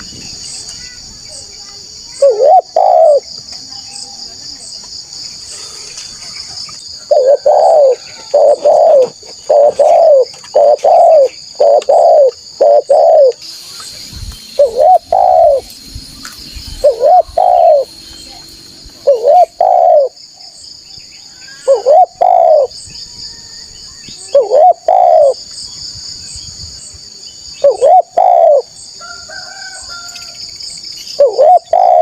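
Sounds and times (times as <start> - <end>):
high insect drone: 0.0 - 32.0
dove cooing: 2.2 - 3.3, 7.0 - 13.4, 14.6 - 15.7, 16.8 - 17.9, 19.0 - 20.2, 21.6 - 22.7, 24.2 - 25.4, 27.6 - 28.7, 31.2 - 32.0.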